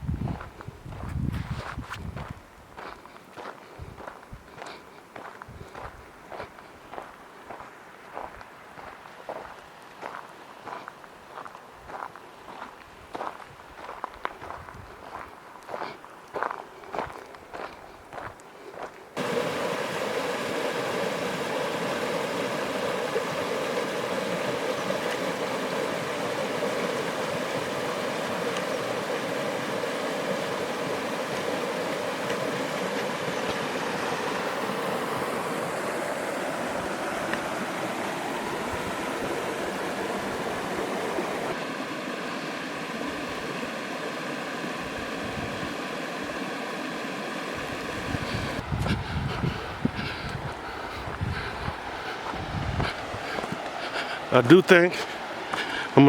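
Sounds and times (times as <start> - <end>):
water rushing over falls: 19.2 - 48.9, 49.6 - 56.0.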